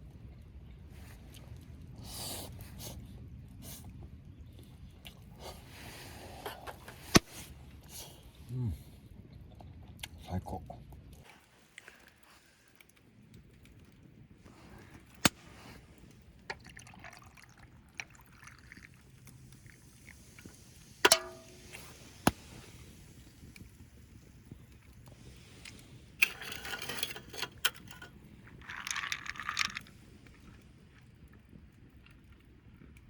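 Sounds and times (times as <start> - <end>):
objects clicking and knocking: 21.0 - 22.4, 25.6 - 30.0.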